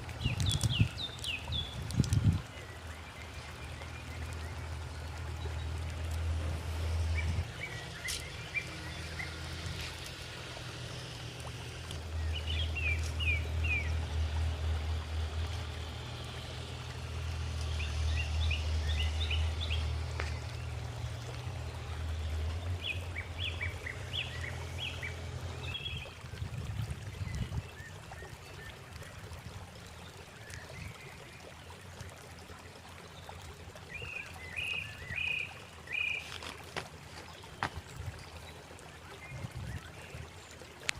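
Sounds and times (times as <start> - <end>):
low outdoor rumble: 0.0 - 27.8.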